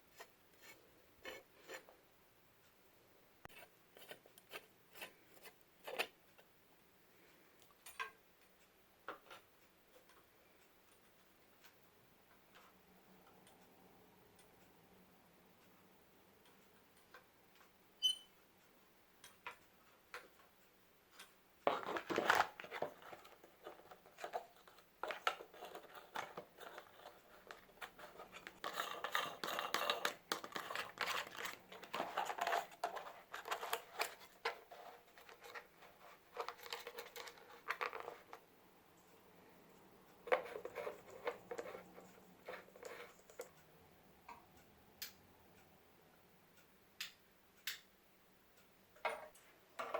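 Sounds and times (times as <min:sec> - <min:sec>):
rustling and scraping: 0:00.0 - 0:02.0, 0:21.7 - 0:38.4, 0:40.2 - 0:43.6.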